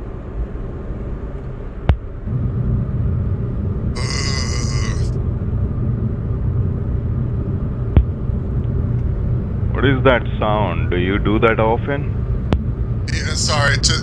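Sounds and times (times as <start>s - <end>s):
man growling: 4.0s - 5.2s, 13.1s - 14.0s.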